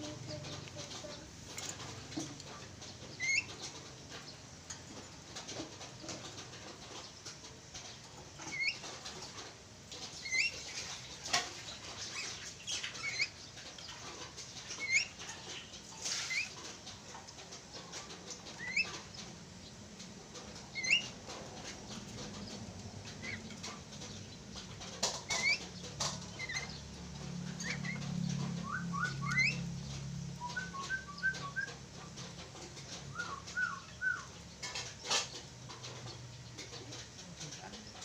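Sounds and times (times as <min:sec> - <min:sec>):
scratchy clicks and rustles: 0:00.0 - 0:38.0
birds whistling calls: 0:03.1 - 0:03.7, 0:18.6 - 0:19.0, 0:20.7 - 0:21.2, 0:27.6 - 0:29.8, 0:30.4 - 0:31.9, 0:32.8 - 0:34.6.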